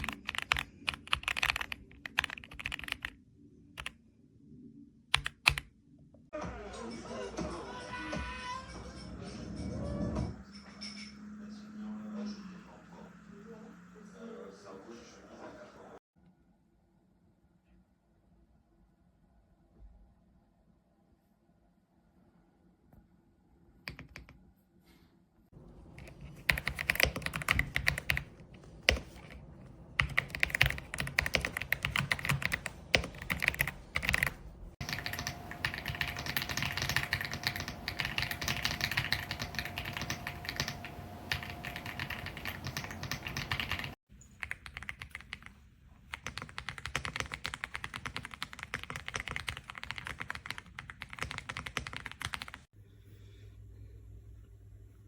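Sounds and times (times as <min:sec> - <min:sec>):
mechanical keyboard typing: 0:00.0 - 0:03.2, 0:05.1 - 0:05.7, 0:23.9 - 0:24.4, 0:26.0 - 0:29.4, 0:30.0 - 0:45.5, 0:46.1 - 0:52.7.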